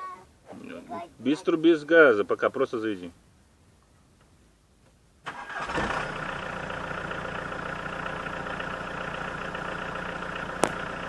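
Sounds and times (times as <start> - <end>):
engine cranking and idling: 5.3 - 11.0.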